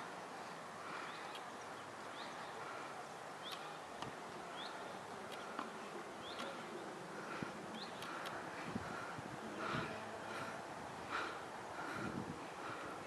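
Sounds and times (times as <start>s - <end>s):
faint outdoor background noise: 0.0s - 13.0s
bird chirping: 1.0s - 2.6s, 3.4s - 3.8s, 4.5s - 5.6s, 6.2s - 7.0s, 7.7s - 8.3s.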